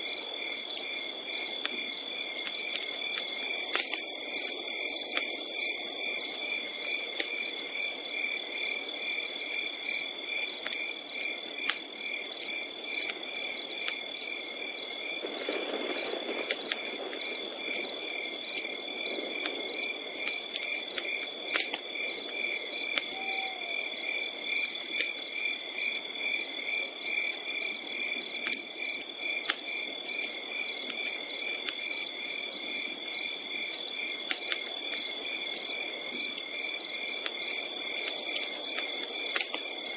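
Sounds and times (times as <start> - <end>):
campfire popping and crackling: 0.0 - 39.9
crickets chirping: 0.0 - 39.9
high insect trill: 1.9 - 6.8.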